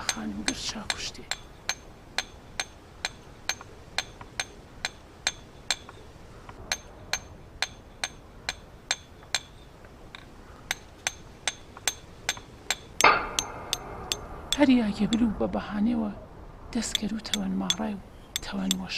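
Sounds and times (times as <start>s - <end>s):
hand hammer striking stone: 10.7s - 14.2s.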